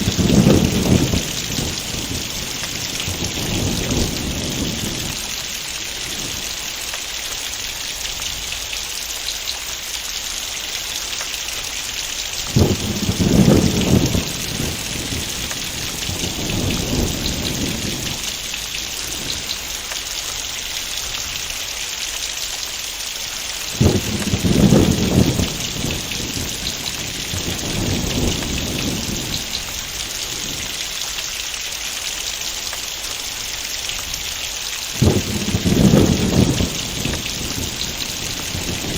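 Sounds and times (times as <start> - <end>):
thunder rumbling: 0.0 - 6.8, 12.4 - 19.9, 23.7 - 30.9, 34.9 - 38.9
heavy rain falling: 0.0 - 38.9.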